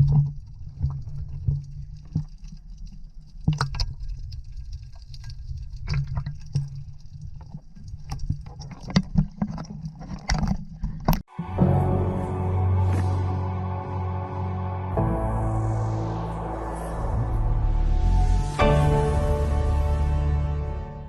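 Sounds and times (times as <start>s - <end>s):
knocks and splashes: 0.0s - 11.3s
music: 11.3s - 21.0s.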